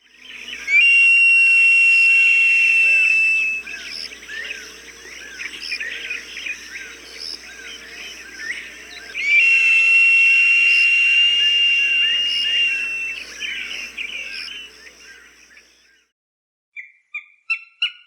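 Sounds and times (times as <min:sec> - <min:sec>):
high whistled hawk call: 0:00.2 - 0:07.0, 0:07.6 - 0:15.3
small birds chirping: 0:02.2 - 0:16.0.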